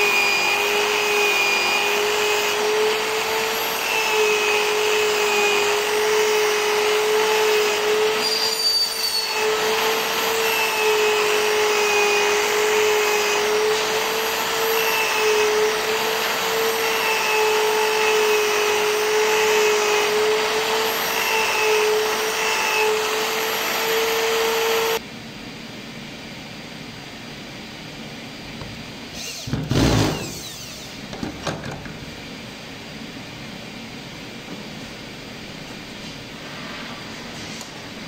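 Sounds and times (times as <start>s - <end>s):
power tool motor whining: 0.0s - 25.0s, 29.1s - 31.6s.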